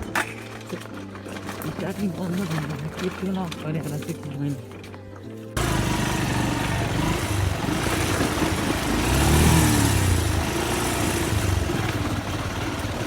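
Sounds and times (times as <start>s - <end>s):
motorcycle engine running: 5.6s - 13.0s.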